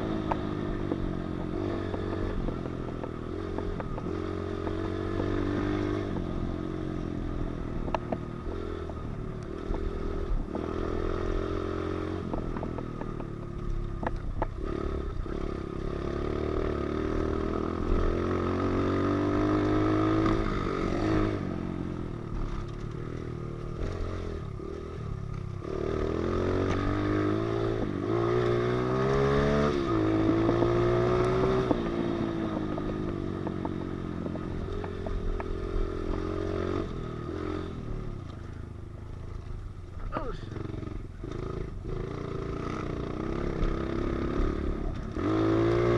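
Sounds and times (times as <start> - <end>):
motorbike engine revving: 0.0 - 38.6, 40.0 - 45.9.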